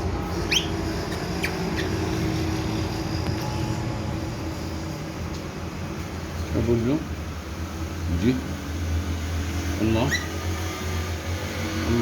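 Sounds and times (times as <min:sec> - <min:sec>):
low mechanical hum: 0:00.0 - 0:12.0
parrot chirps: 0:00.4 - 0:02.0, 0:10.0 - 0:10.4.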